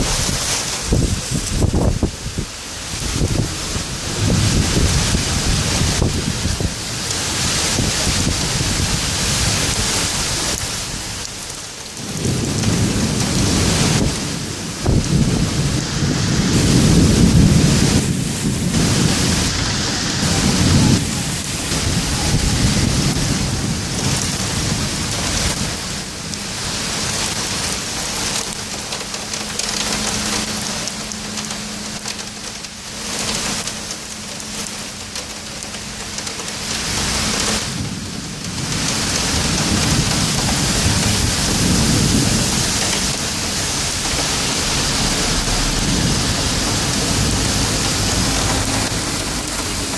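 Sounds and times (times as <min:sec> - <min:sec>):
thunder rumbling: 0:00.0 - 0:32.1, 0:36.7 - 0:49.9
heavy rain pouring: 0:00.0 - 0:49.9.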